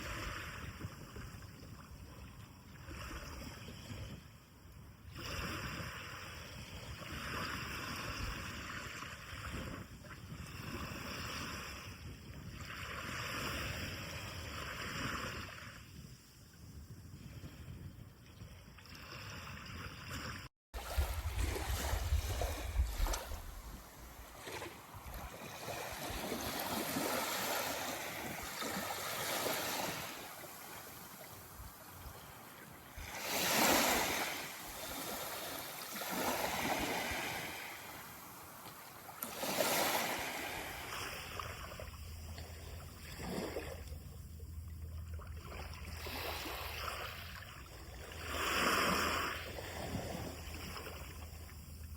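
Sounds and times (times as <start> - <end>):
waves breaking on sandy beach: 18.9 - 42.0, 45.6 - 51.2.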